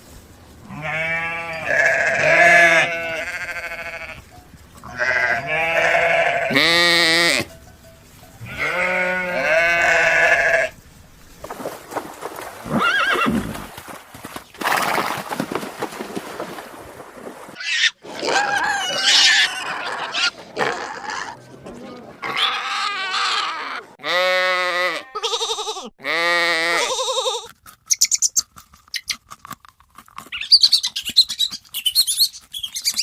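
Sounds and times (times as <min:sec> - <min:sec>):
farm animal calls: 0:00.6 - 0:10.8, 0:17.6 - 0:29.2.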